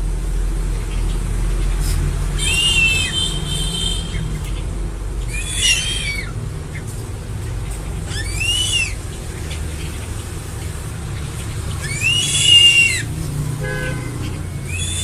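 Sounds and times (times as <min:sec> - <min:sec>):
eagle whistled screams: 0:02.4 - 0:03.4, 0:05.3 - 0:06.4, 0:08.1 - 0:09.0, 0:11.8 - 0:13.1, 0:14.5 - 0:15.0.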